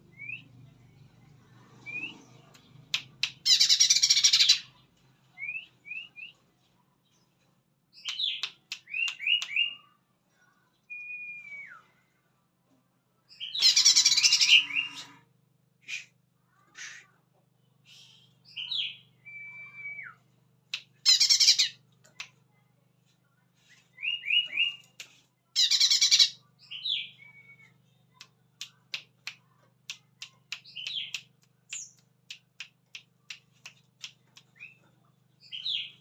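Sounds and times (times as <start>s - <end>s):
harsh rasping bird calls: 13.5s - 15.2s, 21.0s - 21.8s, 25.6s - 26.4s.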